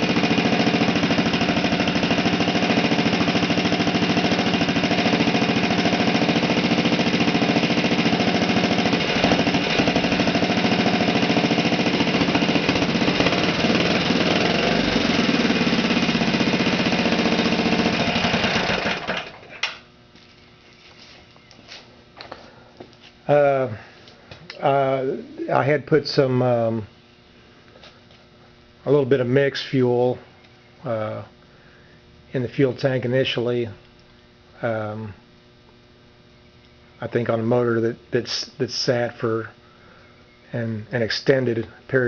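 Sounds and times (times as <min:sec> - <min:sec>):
small engine running: 0:00.0 - 0:19.6.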